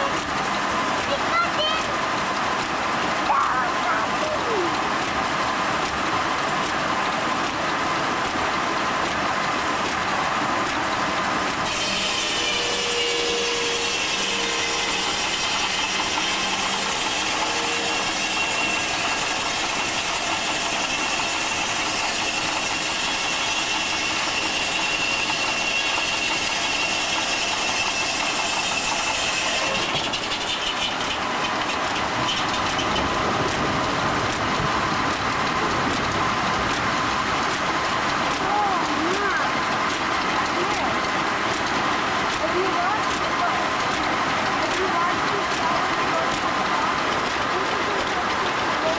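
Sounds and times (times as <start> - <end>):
mill machinery running: 0.0 - 48.9
saw blade whining through log: 11.5 - 41.6.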